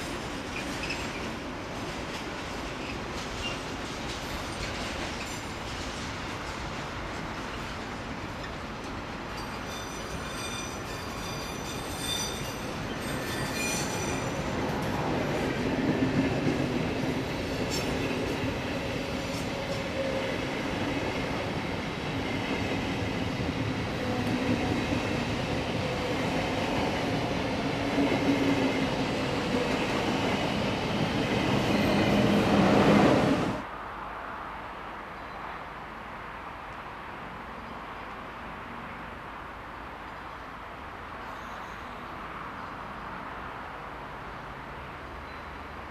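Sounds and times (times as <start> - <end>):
train wheels rumbling on rails: 0.0 - 33.7
steel wheels squealing: 0.5 - 1.3, 9.3 - 14.9, 31.6 - 32.4.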